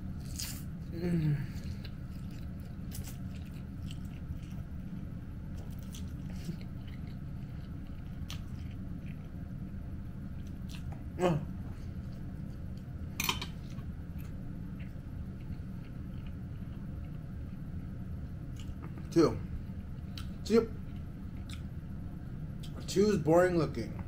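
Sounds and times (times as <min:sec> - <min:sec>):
low steady hum: 0:00.0 - 0:24.0
person chewing: 0:00.2 - 0:09.8, 0:10.4 - 0:12.9, 0:13.5 - 0:17.6, 0:18.5 - 0:19.0, 0:19.8 - 0:21.7.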